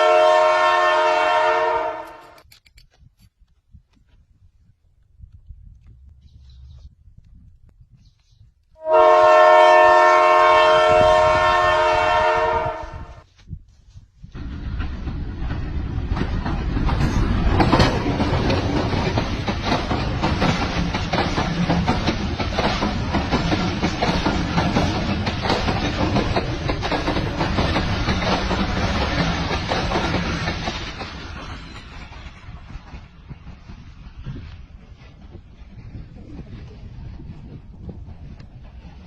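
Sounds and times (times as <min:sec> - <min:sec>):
train horn blast: 0:00.0 - 0:02.3, 0:08.8 - 0:13.2
train wheels rumbling on rails: 0:04.9 - 0:39.0.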